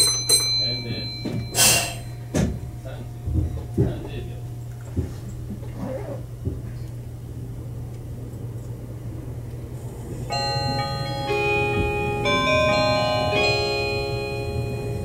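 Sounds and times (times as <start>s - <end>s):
onboard chime melody: 0.0s - 3.0s, 10.3s - 15.0s
train interior hum: 0.0s - 15.0s.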